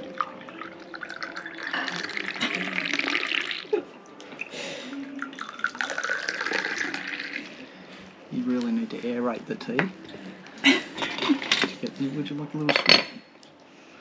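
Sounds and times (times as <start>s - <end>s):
liquid pouring into a cup: 0.0s - 7.8s.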